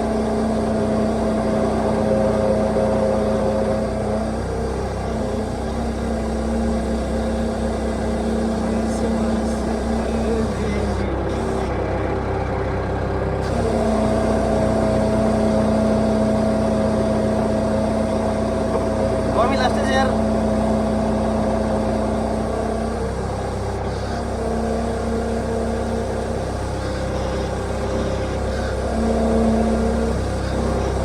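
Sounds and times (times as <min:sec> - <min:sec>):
loader engine running: 0:00.0 - 0:31.0.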